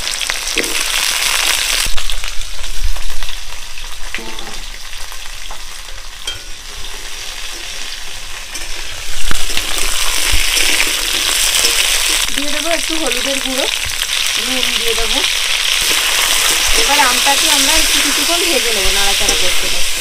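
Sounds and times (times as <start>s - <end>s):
food sizzling in oil: 0.0s - 20.0s
spoon scraping and clacking: 19.0s - 19.8s.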